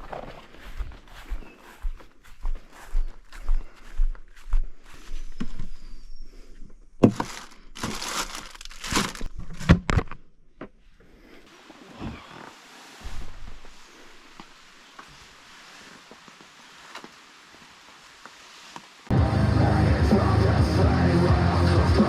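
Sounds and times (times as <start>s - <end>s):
footsteps: 0.0s - 5.9s
loud crinkling and crunching: 7.0s - 10.0s.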